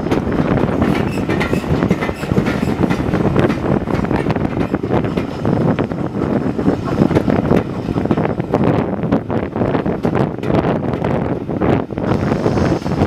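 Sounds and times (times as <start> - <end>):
wheels clattering over rails: 0.0 - 11.8
railway carriages rumbling: 0.0 - 13.0.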